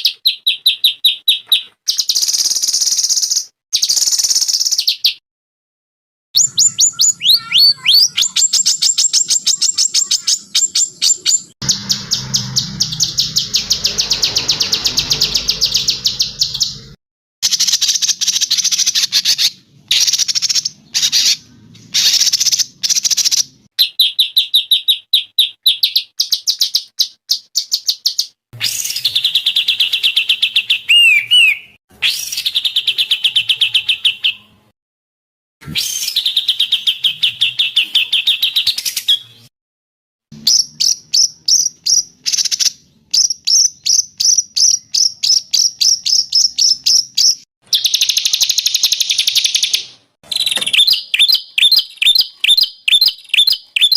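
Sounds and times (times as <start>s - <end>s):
songbirds trilling: 6.4s - 17.0s, 28.7s - 34.4s, 50.3s - 53.9s.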